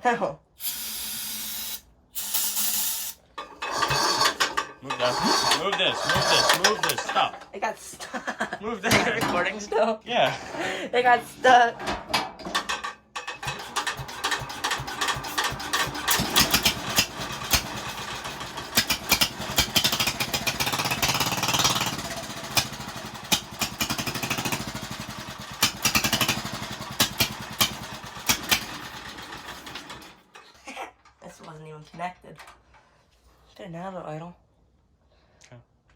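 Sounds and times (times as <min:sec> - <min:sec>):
tractor engine firing roughly: 0:00.8 - 0:07.4, 0:12.0 - 0:30.3.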